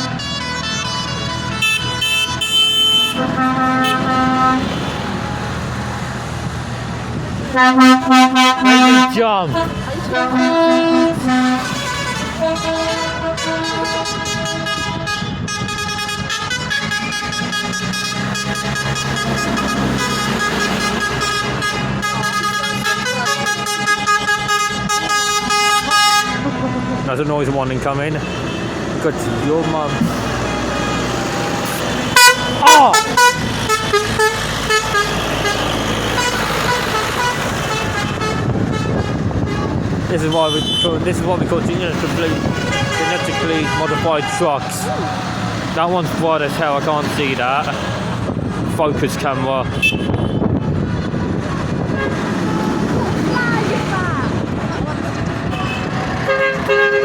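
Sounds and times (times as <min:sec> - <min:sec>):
tractor engines running: 0:00.0 - 0:57.0
horns tooting in short blasts: 0:00.2 - 0:05.0, 0:07.6 - 0:27.0, 0:31.7 - 0:41.0, 0:42.2 - 0:45.0, 0:49.7 - 0:50.6, 0:55.5 - 0:57.0.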